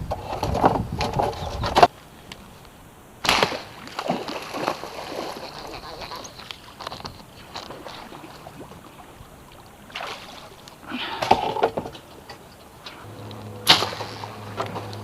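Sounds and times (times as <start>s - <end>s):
low steady hum: 2.0s - 15.0s
splash and clatter: 3.2s - 15.0s
water sloshing: 3.2s - 15.0s.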